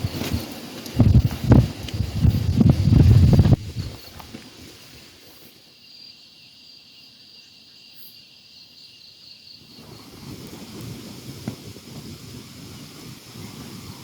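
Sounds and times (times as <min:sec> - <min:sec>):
wind rumble: 0:00.0 - 0:05.1, 0:09.8 - 0:14.0
insects trilling: 0:00.0 - 0:14.0.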